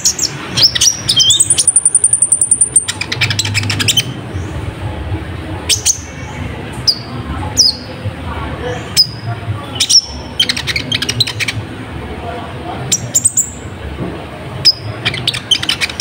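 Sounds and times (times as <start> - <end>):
bird chattering trill: 0.0 - 4.6, 9.8 - 11.7, 14.6 - 16.0.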